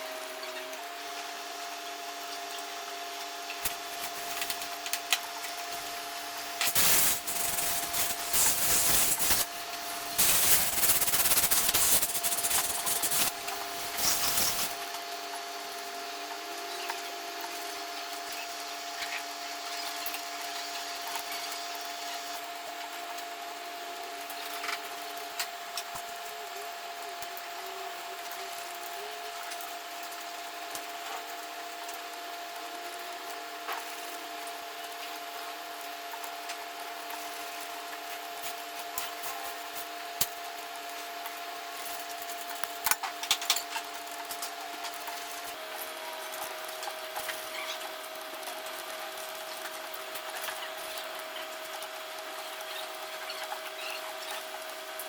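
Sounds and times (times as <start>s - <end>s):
scraping rasp of metal cutting: 10.2s - 14.8s.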